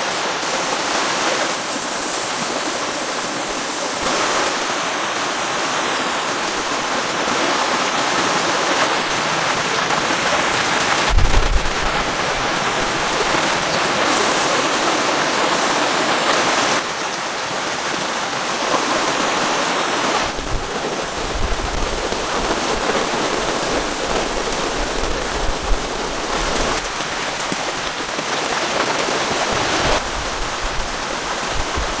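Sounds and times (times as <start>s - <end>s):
heavy rain pouring: 0.0s - 32.0s
wind rumble on microphone: 10.9s - 13.6s, 20.3s - 27.0s, 29.4s - 32.0s.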